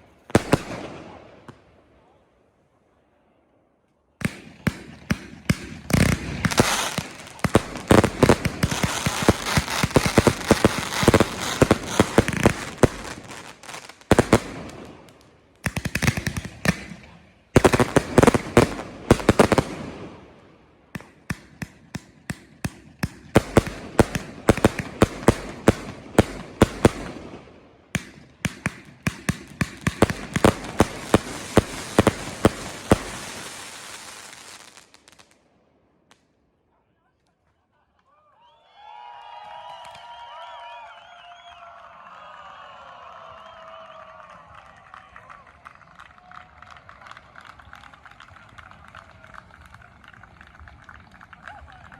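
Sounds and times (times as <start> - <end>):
fireworks bangs and crackle: 0.0 - 1.7, 4.2 - 36.3.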